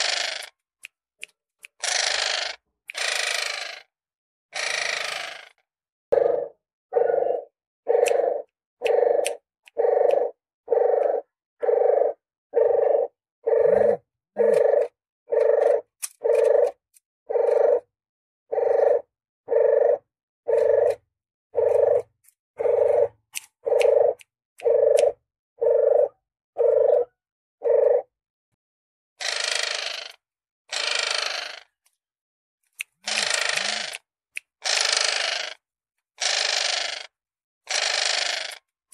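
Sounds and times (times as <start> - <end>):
harsh noisy rasp: 0.0 - 0.5, 1.7 - 3.8, 29.2 - 31.7, 33.0 - 34.0, 34.6 - 35.6, 36.2 - 37.1, 37.7 - 38.6
dove cooing: 6.2 - 17.9, 18.5 - 21.0, 21.6 - 28.1.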